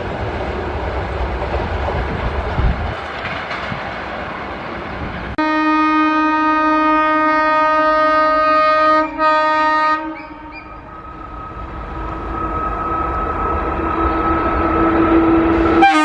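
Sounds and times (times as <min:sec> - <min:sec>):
rail running noise: 0:00.0 - 0:16.0
locomotive horn blasts: 0:05.4 - 0:10.8, 0:15.0 - 0:16.0.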